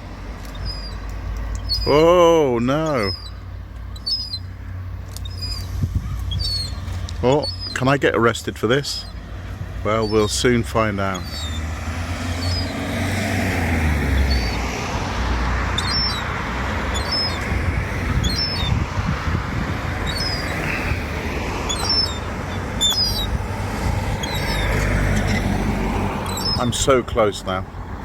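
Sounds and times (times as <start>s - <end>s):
rushing background noise: 0.0s - 28.0s
gull begging peeps: 0.4s - 9.2s, 9.9s - 12.8s, 14.0s - 14.7s, 15.7s - 18.9s, 19.9s - 23.4s, 24.1s - 25.6s, 26.2s - 26.9s.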